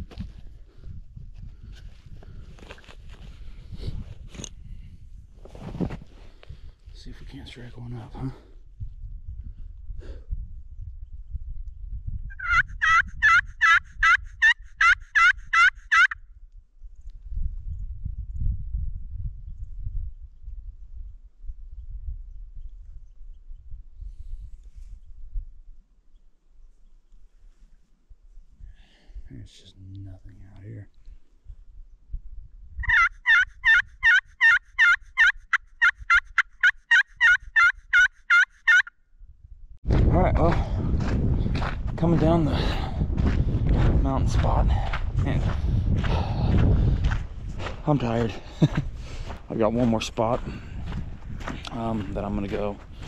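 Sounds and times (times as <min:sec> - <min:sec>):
turkey call yelps: 0:12.3 - 0:16.2, 0:32.8 - 0:38.9.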